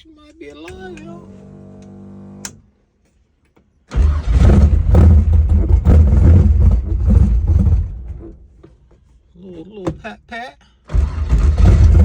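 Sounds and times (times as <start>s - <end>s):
car engine running rough: 3.9s - 8.5s, 10.9s - 12.0s.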